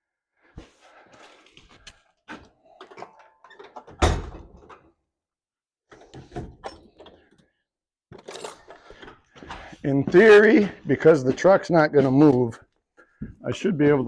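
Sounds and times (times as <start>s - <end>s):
tools and metal parts clattering: 2.7s - 4.9s, 8.1s - 9.6s.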